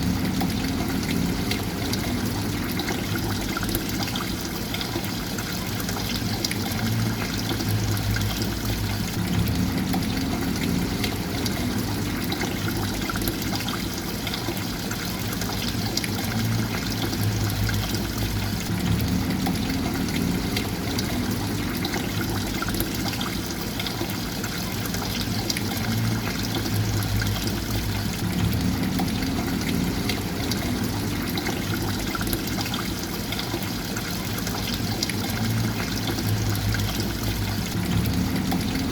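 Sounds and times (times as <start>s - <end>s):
water trickling and pouring: 0.0s - 38.9s
low rumble: 6.6s - 13.6s, 16.3s - 23.4s, 25.8s - 32.6s, 35.3s - 38.9s.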